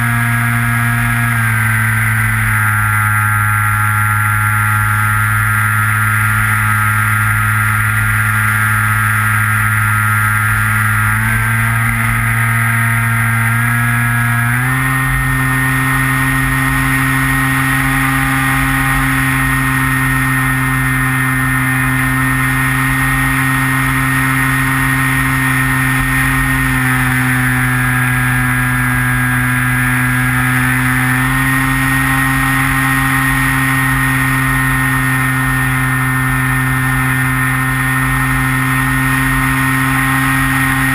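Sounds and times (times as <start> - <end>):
rc plane motor drone: 0.0 - 40.9.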